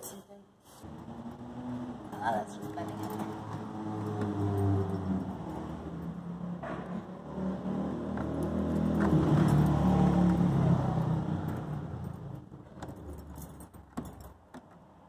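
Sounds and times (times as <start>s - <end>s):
light clicks and jangles: 2.1s - 6.4s, 8.2s - 14.8s.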